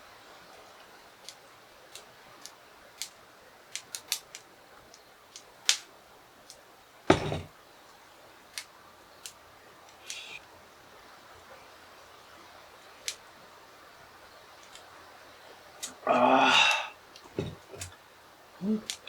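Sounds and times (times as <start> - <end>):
clicks and taps handling objects: 6.5 - 7.5, 17.2 - 18.0, 18.8 - 19.0
heavy thump with rustling: 7.1 - 7.5, 17.3 - 17.9.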